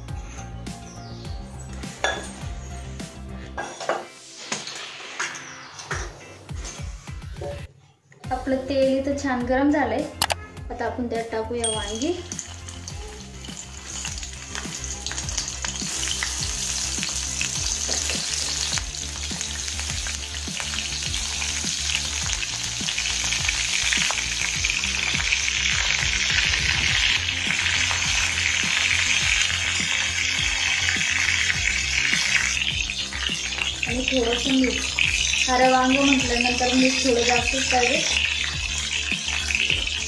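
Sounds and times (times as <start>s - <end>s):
vegetables sizzling in hot oil: 4.3s - 5.7s, 11.8s - 40.0s.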